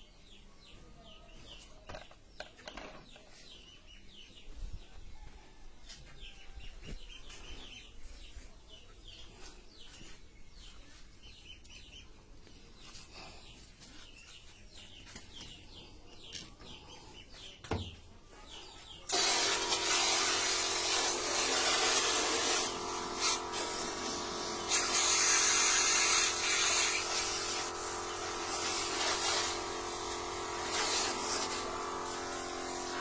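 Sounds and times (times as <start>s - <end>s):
pressure washer motor hum: 19.1s - 33.0s
water spray hissing: 19.1s - 33.0s.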